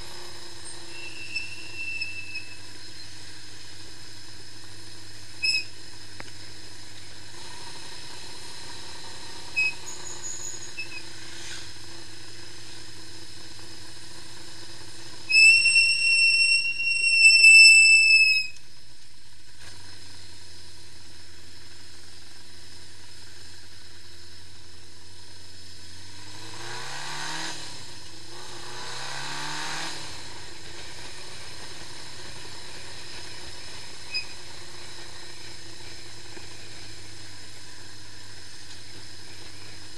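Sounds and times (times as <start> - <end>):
motorcycle engine idling and revving: 0.0 - 39.9
loud high whistling tone: 0.6 - 3.0, 5.4 - 5.7, 15.3 - 18.6.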